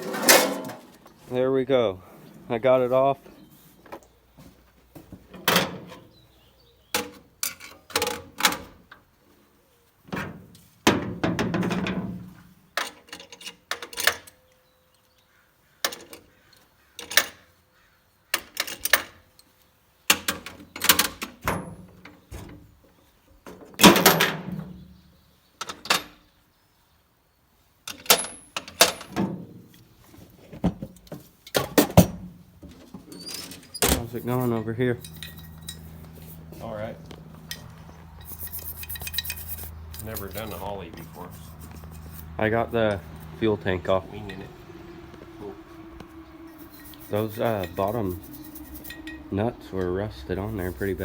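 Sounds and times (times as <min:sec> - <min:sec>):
metal clanks and knocks: 0:00.0 - 0:01.0, 0:10.1 - 0:14.2, 0:23.5 - 0:24.8, 0:27.9 - 0:29.8, 0:30.6 - 0:43.4, 0:46.1 - 0:49.3.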